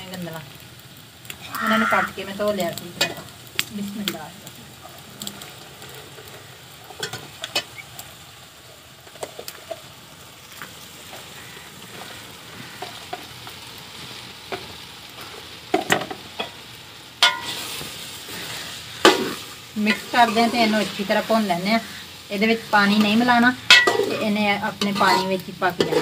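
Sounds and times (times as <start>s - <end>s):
food sizzling in a pot: 0.0s - 26.0s
ladle clinking and scraping pot: 6.9s - 7.8s, 17.2s - 17.6s, 23.7s - 24.2s, 24.8s - 26.0s.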